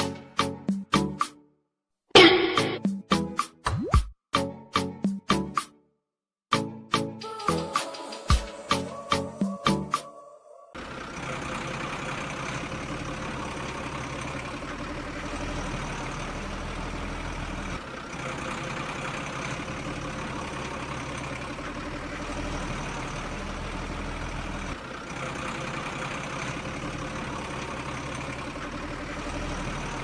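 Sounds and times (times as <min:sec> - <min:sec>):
heavy vehicle engine idling: 0:10.8 - 0:30.0.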